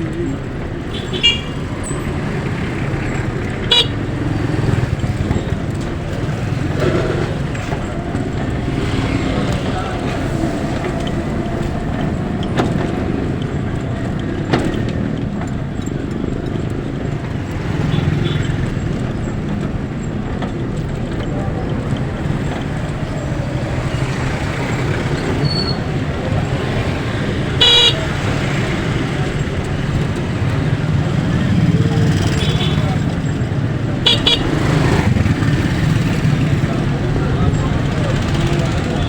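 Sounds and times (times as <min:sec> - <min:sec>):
road traffic noise: 0:00.0 - 0:39.0
vehicle horn toot: 0:00.9 - 0:01.8, 0:03.6 - 0:04.1, 0:27.6 - 0:28.3, 0:34.0 - 0:34.6.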